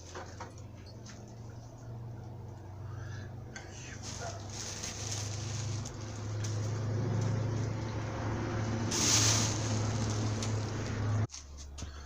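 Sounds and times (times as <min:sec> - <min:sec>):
hissy surge: 0:08.8 - 0:10.8.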